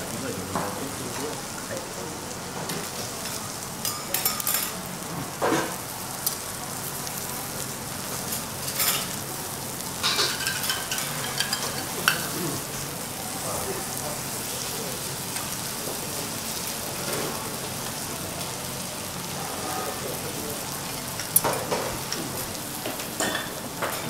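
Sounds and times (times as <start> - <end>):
foie gras sizzling on griddle: 0.0 - 24.0
sharp crackles and clicks: 5.7 - 12.7.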